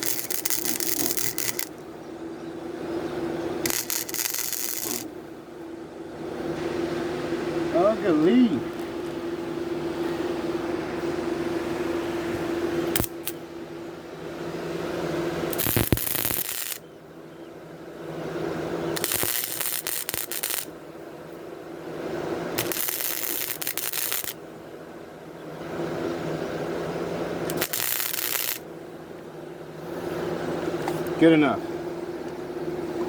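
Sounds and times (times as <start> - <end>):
welder crackling hiss: 0.0 - 1.8, 3.6 - 5.1, 12.9 - 13.4, 15.5 - 16.8, 18.9 - 20.7, 22.5 - 24.4, 27.4 - 28.7.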